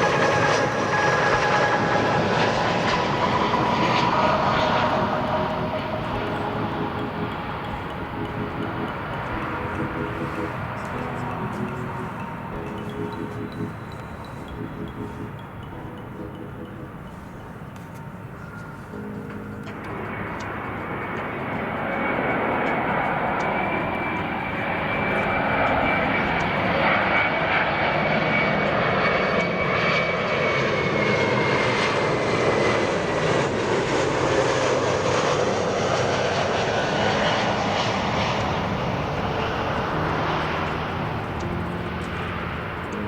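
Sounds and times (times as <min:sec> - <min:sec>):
high engine whine: 0:00.0 - 0:43.0
jet engines roaring: 0:00.0 - 0:43.0.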